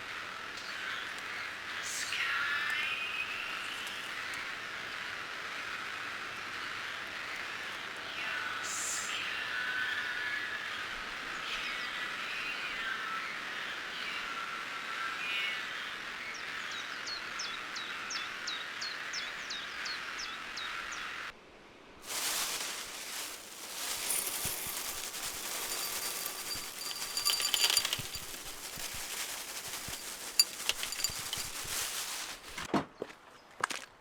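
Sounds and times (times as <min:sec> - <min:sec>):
rustling: 0:22.0 - 0:32.7
steady hiss: 0:22.0 - 0:32.7.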